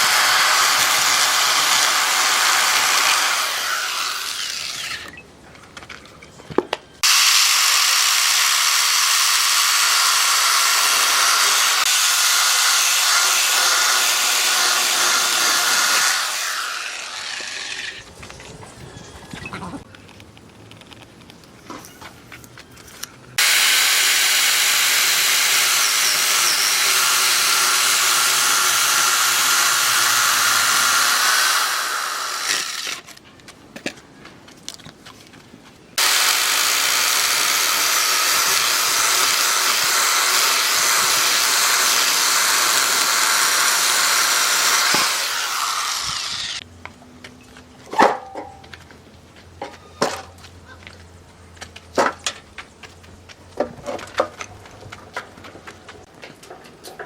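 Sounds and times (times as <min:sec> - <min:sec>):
power tool cutting wood: 0:00.0 - 0:05.2, 0:07.0 - 0:18.0, 0:23.4 - 0:33.0, 0:36.0 - 0:46.6.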